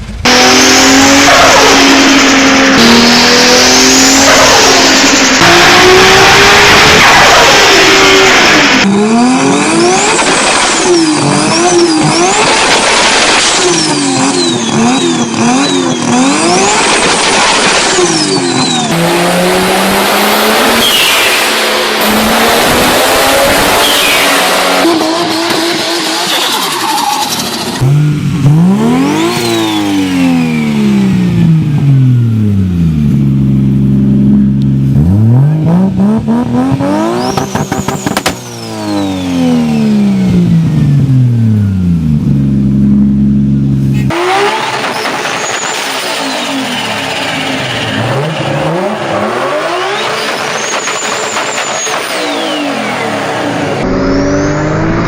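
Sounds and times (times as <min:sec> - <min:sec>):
turbocharged car engines revving: 0:00.0 - 0:55.0
turbo flutter and antilag pops: 0:37.3 - 0:38.5.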